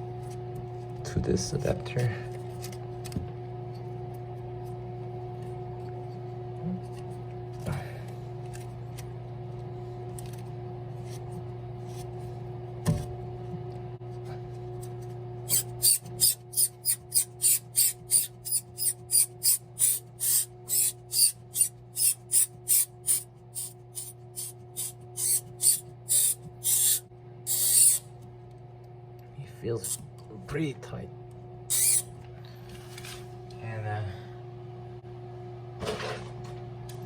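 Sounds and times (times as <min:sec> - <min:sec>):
steady low hum: 0:00.0 - 0:37.0
hose coupling rasping scrapes: 0:15.5 - 0:28.0, 0:31.7 - 0:32.0.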